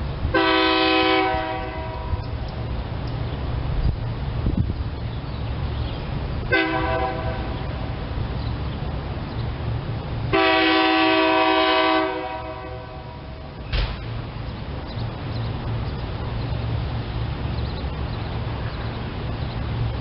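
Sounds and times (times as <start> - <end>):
low rumble of train: 0.0 - 20.0
train horn blasts: 0.3 - 2.3, 6.5 - 8.0, 10.3 - 13.6.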